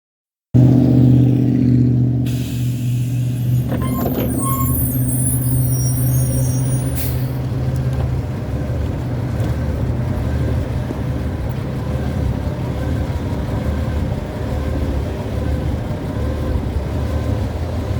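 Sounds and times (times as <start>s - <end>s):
bus engine running: 0.6s - 17.9s
air brake hiss: 2.3s - 7.4s
high squeaks: 3.3s - 7.4s.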